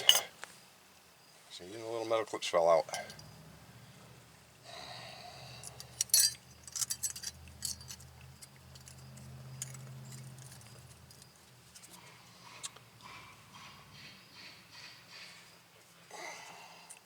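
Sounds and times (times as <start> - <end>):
brake pad clips clinking: 5.6 - 12.0.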